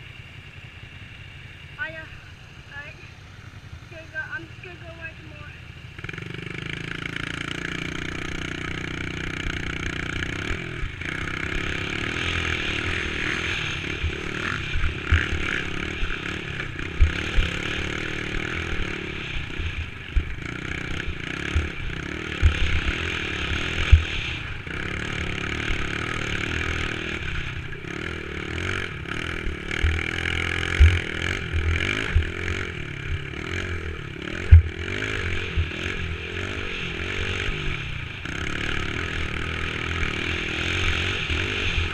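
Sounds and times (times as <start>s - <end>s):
dirt bike engine revving: 0.0s - 41.9s
sharp thumps: 34.4s - 34.7s.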